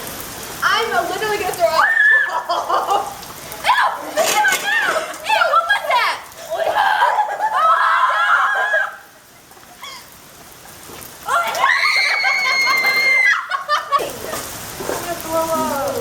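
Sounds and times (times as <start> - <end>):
rain falling: 0.0 - 16.0
girl screaming: 1.7 - 2.5, 3.6 - 9.1, 11.2 - 13.8.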